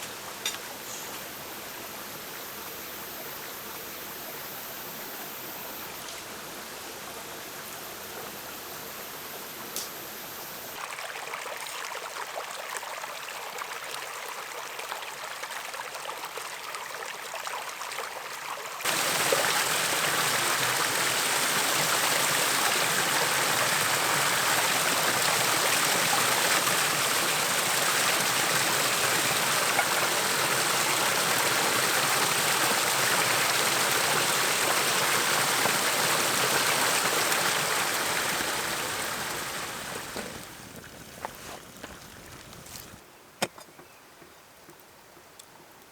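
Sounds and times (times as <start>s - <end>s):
hot oil sizzling: 18.8s - 40.8s.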